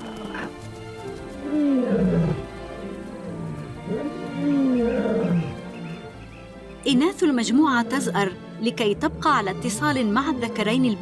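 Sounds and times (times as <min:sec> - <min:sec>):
background music: 0:00.0 - 0:11.0
lioness roaring: 0:01.4 - 0:02.5, 0:03.8 - 0:05.7.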